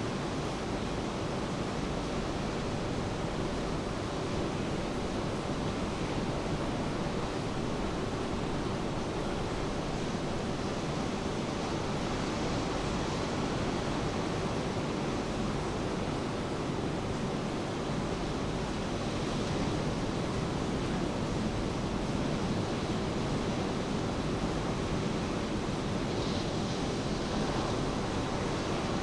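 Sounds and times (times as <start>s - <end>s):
steady rain: 1.7s - 29.0s.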